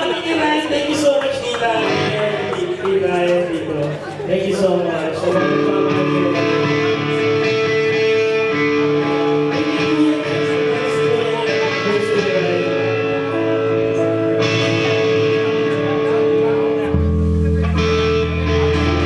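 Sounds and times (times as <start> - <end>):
guitar chords ringing: 5.4 - 19.0.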